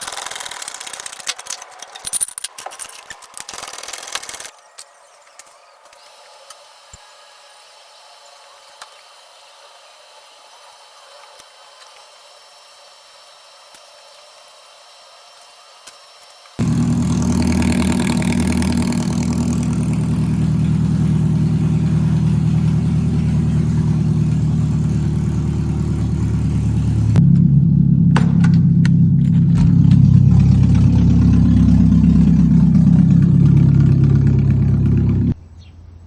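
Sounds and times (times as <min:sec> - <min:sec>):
car engine running loudly: 0:16.6 - 0:35.4.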